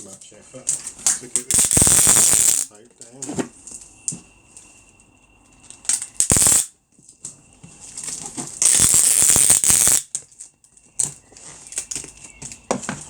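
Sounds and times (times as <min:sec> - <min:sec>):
packing tape tearing screech: 0:01.4 - 0:02.7, 0:05.9 - 0:06.7, 0:08.6 - 0:10.1.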